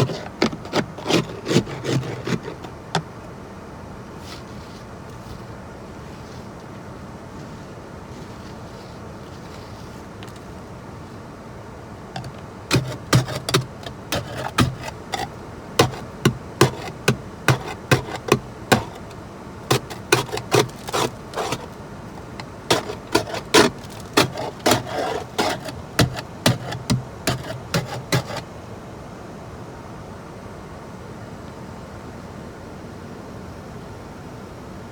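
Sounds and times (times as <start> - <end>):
hard knocks: 12.2 - 21.7, 22.4 - 28.4.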